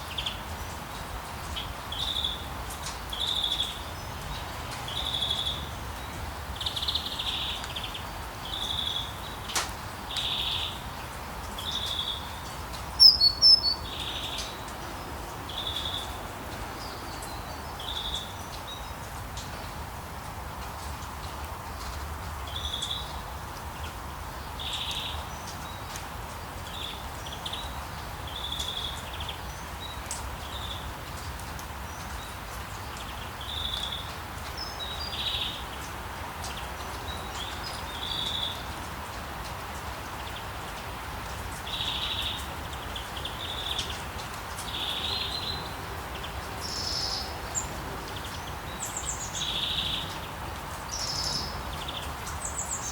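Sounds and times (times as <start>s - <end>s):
outdoor background hiss: 0.0s - 52.9s
birds chirping: 11.6s - 16.2s.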